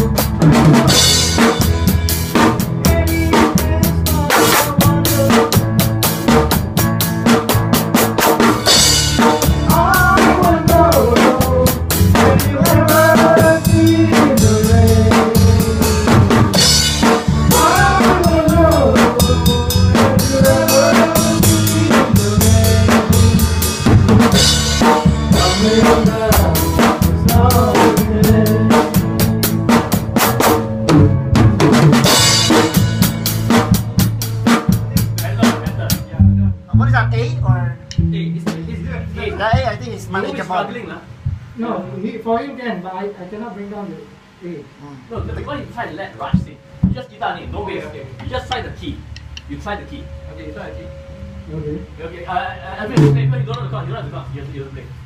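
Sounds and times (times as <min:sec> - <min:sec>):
bass line: 0:00.0 - 0:41.6, 0:46.3 - 0:55.0
drum kit beat: 0:00.0 - 0:41.6, 0:46.2 - 0:52.0, 0:52.8 - 0:55.0
live band playing: 0:00.0 - 0:41.6, 0:52.8 - 0:55.0
bending melodic line: 0:08.6 - 0:40.5, 0:45.4 - 0:55.0.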